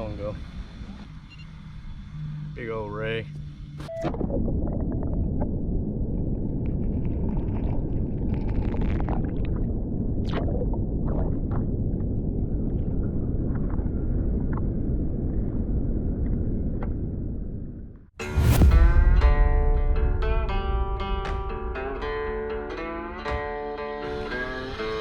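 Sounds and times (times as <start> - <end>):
wind: 0.0 - 23.3
water: 3.9 - 16.4.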